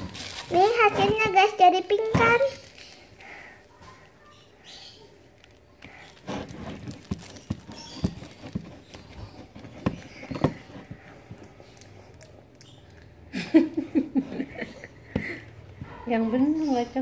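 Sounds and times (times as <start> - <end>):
child's voice: 0.4 - 2.8
hands handling slime: 5.4 - 13.1.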